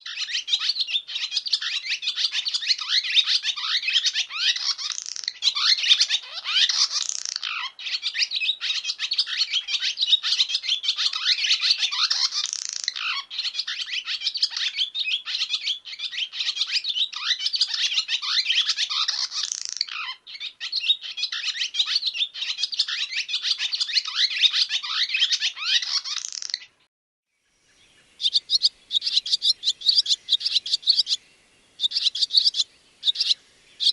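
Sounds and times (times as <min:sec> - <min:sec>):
swallow twittering song: 0:27.4 - 0:33.9.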